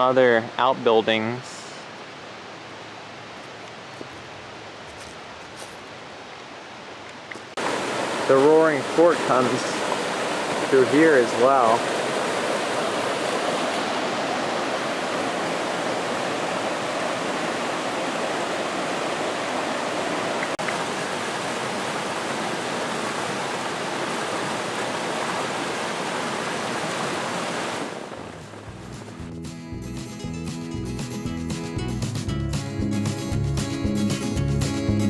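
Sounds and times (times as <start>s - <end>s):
stream rushing over rocks: 7.4s - 29.2s.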